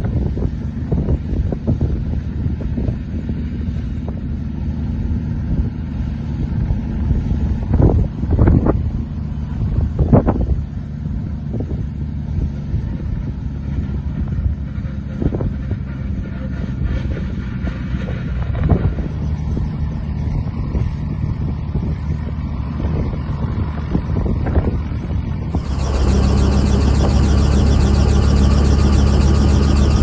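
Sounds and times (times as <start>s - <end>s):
helicopter engine and rotors drone: 25.4s - 30.0s.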